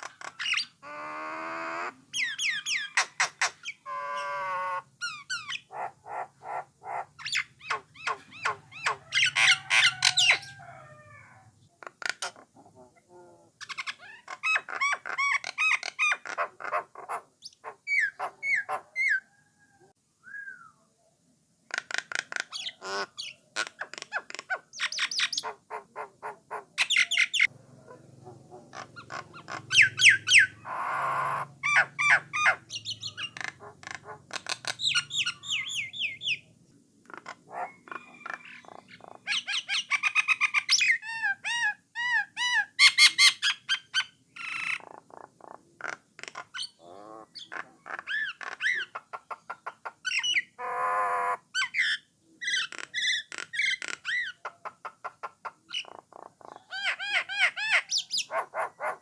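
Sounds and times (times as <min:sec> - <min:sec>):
harsh rasping bird call: 0:00.0 - 0:11.3, 0:28.7 - 0:36.4
bird singing whistled notes: 0:20.2 - 0:20.8.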